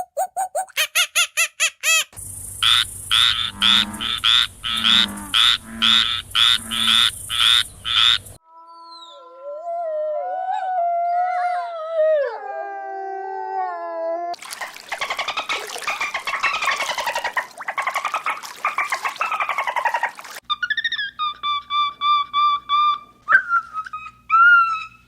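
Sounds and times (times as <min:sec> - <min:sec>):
rapid clucking pulses: 0:00.0 - 0:08.4, 0:14.4 - 0:20.4
frogs croaking: 0:02.2 - 0:08.4, 0:14.5 - 0:20.4.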